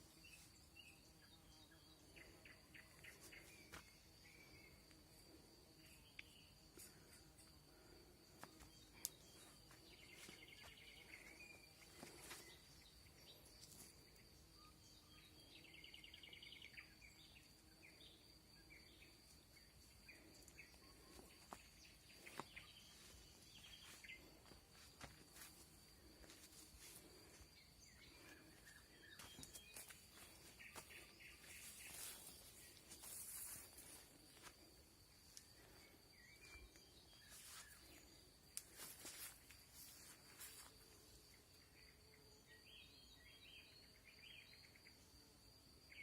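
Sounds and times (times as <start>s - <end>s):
nightingale singing: 8.6s - 24.6s.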